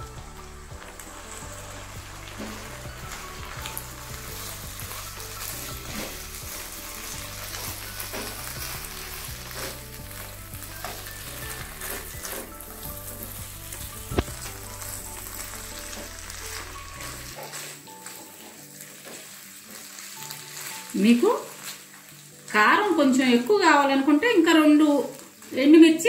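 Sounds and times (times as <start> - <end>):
chicken sizzling in oil: 0.0 - 26.0
spatula scraping and tapping pan: 2.2 - 22.2.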